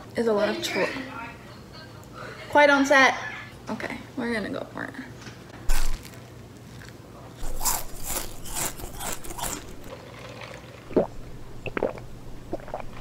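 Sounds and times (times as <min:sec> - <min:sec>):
chewing toasted bread crunches: 0:05.7 - 0:09.9.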